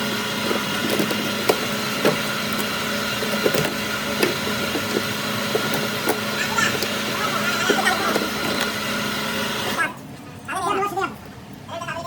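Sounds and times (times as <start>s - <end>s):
workshop hum: 0.0s - 10.0s
tools knocking on metal: 0.4s - 8.8s.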